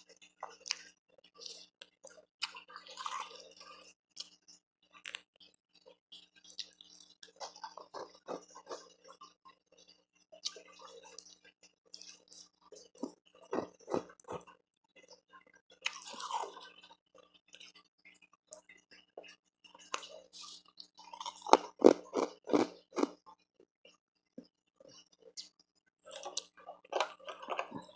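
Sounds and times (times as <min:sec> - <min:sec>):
chewing ice crunches: 0:06.5 - 0:09.2, 0:12.0 - 0:14.5, 0:15.8 - 0:16.9, 0:20.9 - 0:23.2, 0:26.0 - 0:27.9.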